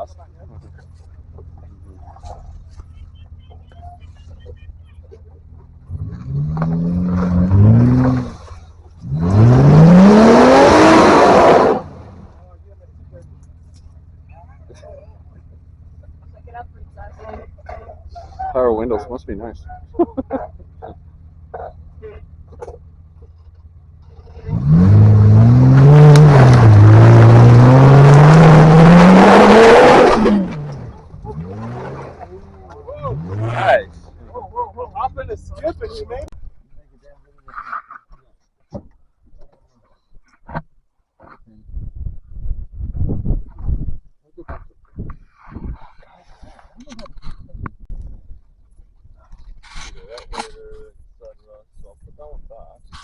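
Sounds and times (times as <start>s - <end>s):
off-road engine revving: 0.0s - 36.4s
tyre and ground noise: 0.0s - 53.0s
engine revving hard under load: 5.9s - 12.4s, 24.3s - 32.4s, 33.0s - 34.2s.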